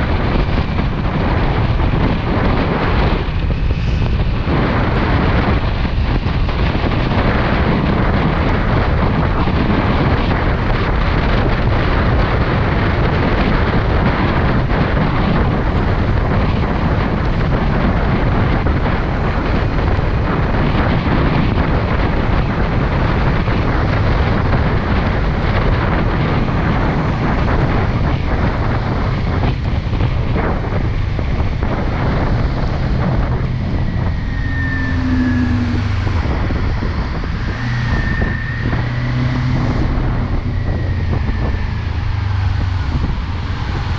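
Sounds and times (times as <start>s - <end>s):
motorcycle engine: 0.0s - 43.9s
road noise: 0.0s - 43.9s
wind rushing over microphone: 0.0s - 43.9s.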